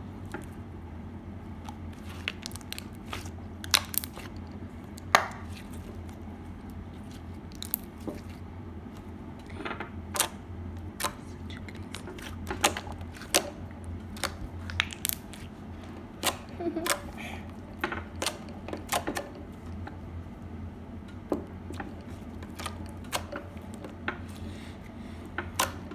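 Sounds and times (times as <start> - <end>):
crunchy slime crackling and popping: 1.4 - 8.4, 10.1 - 19.0.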